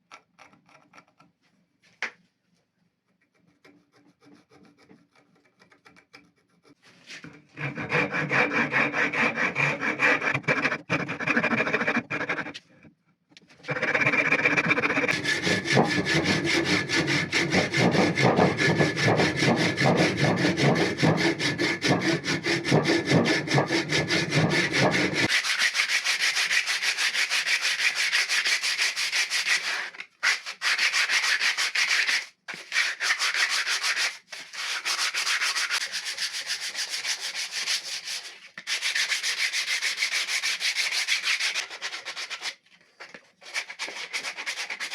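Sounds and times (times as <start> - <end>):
abrasive tool rubbing wood: 6.6 - 12.7, 13.6 - 25.4.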